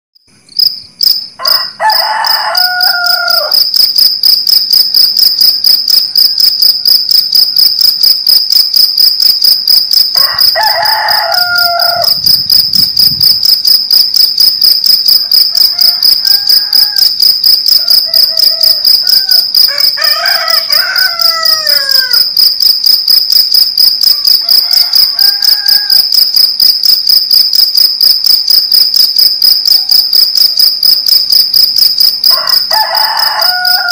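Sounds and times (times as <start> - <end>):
crickets chirping: 0.2 - 33.9
roosters crowing: 1.4 - 3.8, 10.1 - 12.6, 15.2 - 22.4, 24.2 - 26.2, 32.2 - 33.9.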